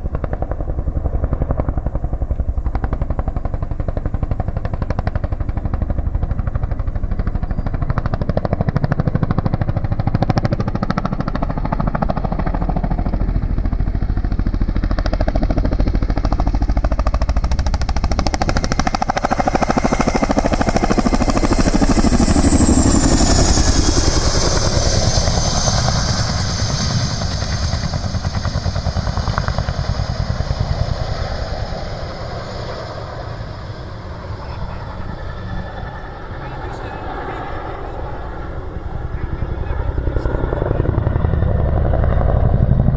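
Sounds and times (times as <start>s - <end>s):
helicopter rotors beating: 0.0s - 42.9s
high turbine whine: 0.0s - 42.9s.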